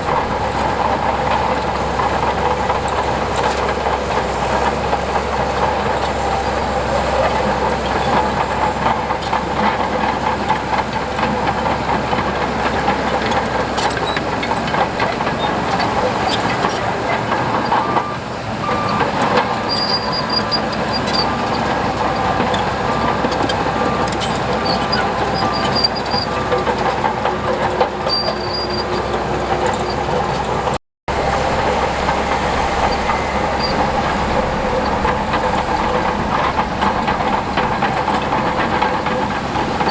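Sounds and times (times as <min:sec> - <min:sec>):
diesel machinery working: 0:00.0 - 0:39.9
metallic clanking: 0:31.1 - 0:39.9
reversing alarm beeping: 0:31.1 - 0:39.9.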